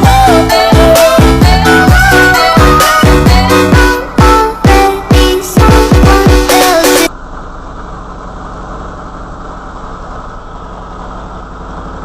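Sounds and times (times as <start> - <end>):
background music: 0.0 - 7.1
faint hum: 7.1 - 12.0.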